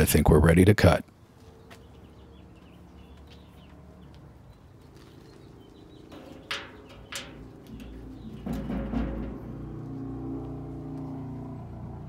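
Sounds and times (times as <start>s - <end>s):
clamp clicking on metal drum: 6.1s - 9.9s.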